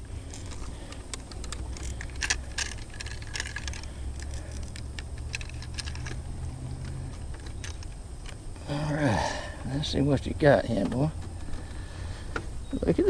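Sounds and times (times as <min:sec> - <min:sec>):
small gear clicking and rattling: 0:00.0 - 0:08.9
low steady hum: 0:00.0 - 0:13.0.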